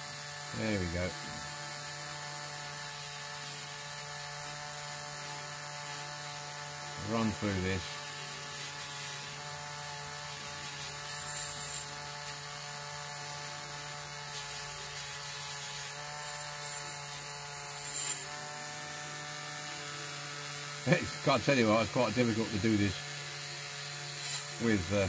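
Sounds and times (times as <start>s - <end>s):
rotary tool high whine: 0.0s - 25.0s
wire scratching on metal: 10.2s - 12.4s, 14.3s - 18.6s.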